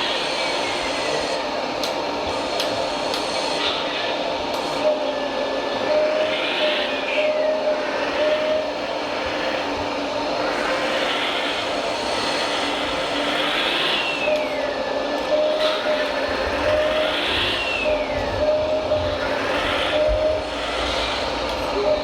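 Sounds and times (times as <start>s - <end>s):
small electric motors whirring: 5.8s - 22.0s.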